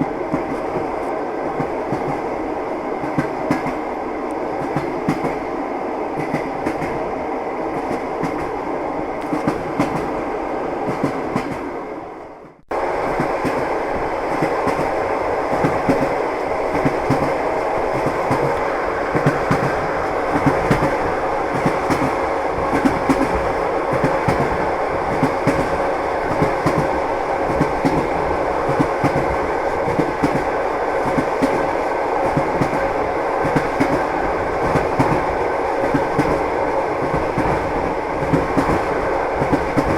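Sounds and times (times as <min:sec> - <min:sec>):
train wheels clattering on rails: 0:00.0 - 0:03.9, 0:04.6 - 0:07.1, 0:07.7 - 0:08.6, 0:09.2 - 0:10.2, 0:10.8 - 0:11.7, 0:13.0 - 0:39.9
railway carriage rumble: 0:00.0 - 0:39.9.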